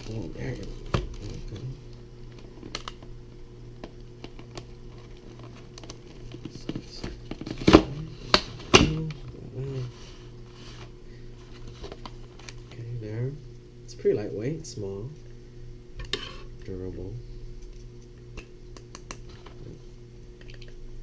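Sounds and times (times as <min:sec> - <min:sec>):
steady low hum: 0:00.0 - 0:21.0
packaging rustling and crinkling: 0:03.8 - 0:12.8.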